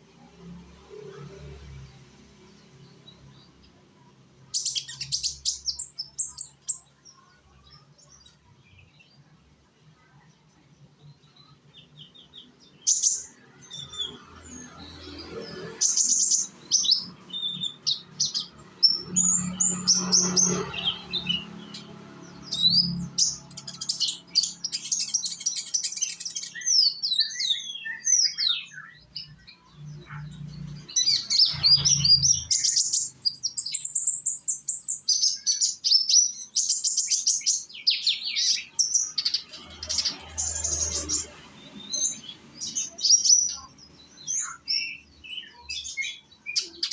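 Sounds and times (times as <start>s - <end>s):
sunbird chirps and trills: 0.0s - 46.9s.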